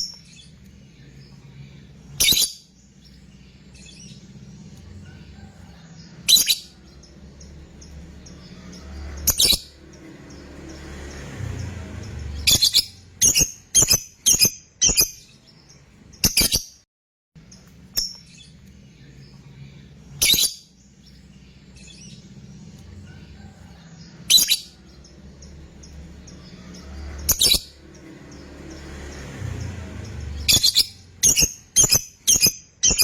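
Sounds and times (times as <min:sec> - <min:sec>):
lovebird shrill calls: 0:02.2 - 0:02.6, 0:20.2 - 0:20.6, 0:30.4 - 0:33.0.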